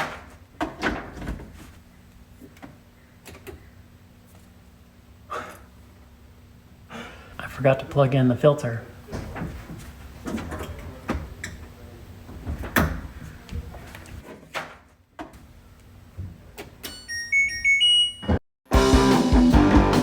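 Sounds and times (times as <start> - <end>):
electronic power-on tune beeps: 17.1 - 18.4.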